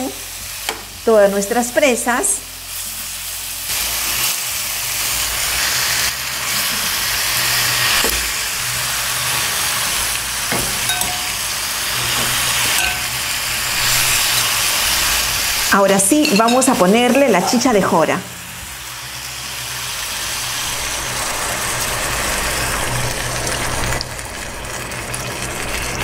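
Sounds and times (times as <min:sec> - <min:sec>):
beef sizzling in a pot: 0:00.0 - 0:26.0
utensils clicking against pot: 0:12.0 - 0:14.7, 0:15.7 - 0:17.8.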